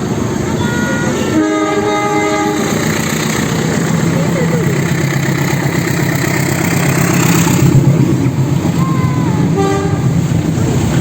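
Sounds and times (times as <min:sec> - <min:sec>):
train engine drone: 0:00.0 - 0:11.0
train rumbling: 0:00.0 - 0:11.0
train horn toot: 0:00.8 - 0:02.8, 0:09.5 - 0:10.2.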